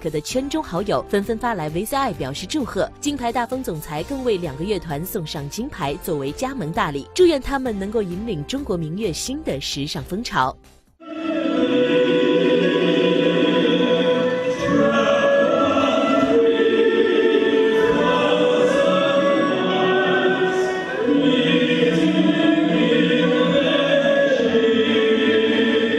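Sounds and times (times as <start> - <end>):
choir singing held notes: 11.0 - 25.9.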